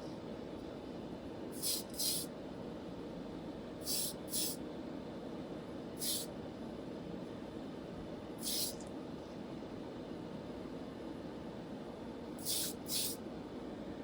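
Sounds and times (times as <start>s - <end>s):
steady low hum: 0.0s - 14.0s
hissing spray bursts: 1.6s - 2.3s, 3.8s - 4.6s, 6.0s - 6.3s, 8.4s - 8.8s, 12.4s - 13.2s.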